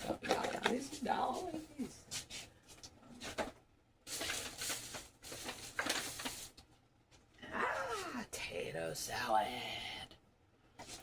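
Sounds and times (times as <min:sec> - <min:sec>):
packaging rustling: 0:04.1 - 0:06.6.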